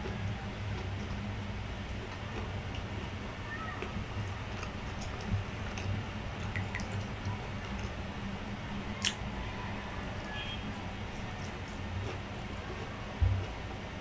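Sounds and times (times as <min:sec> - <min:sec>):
steady low hum: 0:00.0 - 0:14.0
person chewing: 0:03.8 - 0:08.0, 0:10.2 - 0:13.5.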